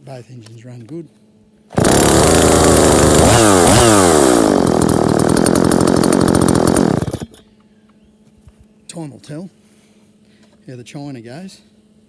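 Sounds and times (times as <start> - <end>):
chainsaw revving: 1.7 - 7.4.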